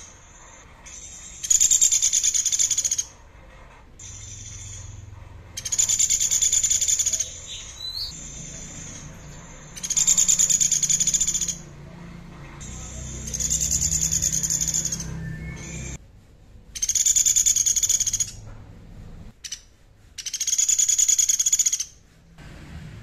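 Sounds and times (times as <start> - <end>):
songbird high trill: 5.6 - 11.6.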